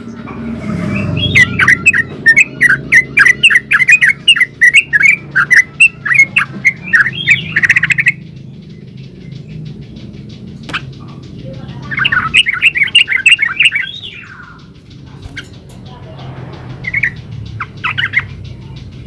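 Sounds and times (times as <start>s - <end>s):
bird chirping song: 0.0s - 19.0s.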